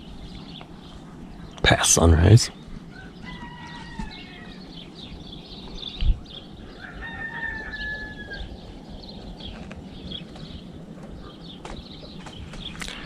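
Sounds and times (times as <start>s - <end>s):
roosters crowing: 2.7s - 5.5s, 6.4s - 8.9s.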